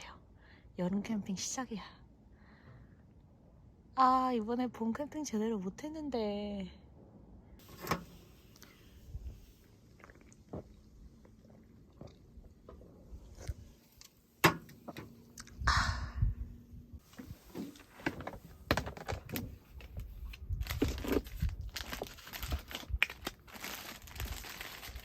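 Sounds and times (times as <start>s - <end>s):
rustling and crinkling: 17.0s - 25.0s.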